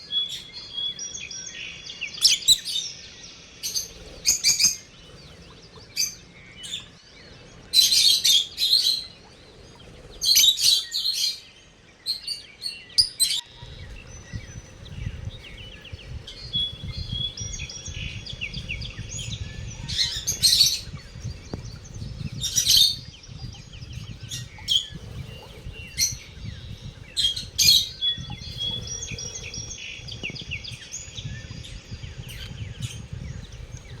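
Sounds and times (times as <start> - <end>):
lovebirds chirping: 0.0 - 34.0
low steady rumble: 13.4 - 34.0.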